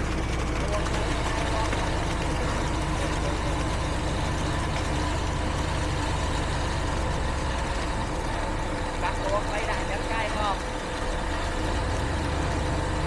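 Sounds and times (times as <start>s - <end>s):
diesel truck engine rumbling: 0.0s - 13.0s.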